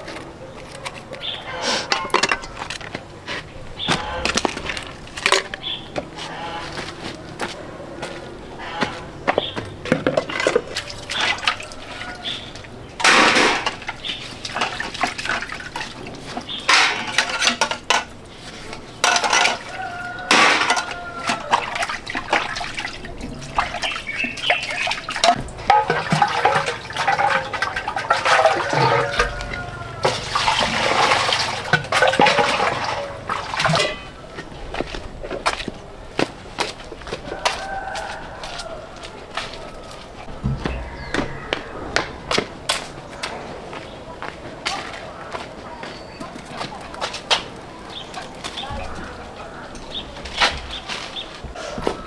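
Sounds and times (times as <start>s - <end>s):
water splashing and pouring: 3.8s - 6.9s, 9.8s - 34.9s
clatter and knocks: 25.2s - 34.2s.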